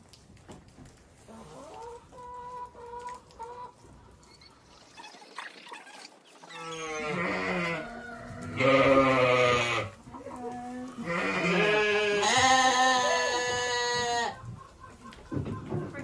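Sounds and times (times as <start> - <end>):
goats bleating: 6.5 - 10.0, 10.8 - 14.4.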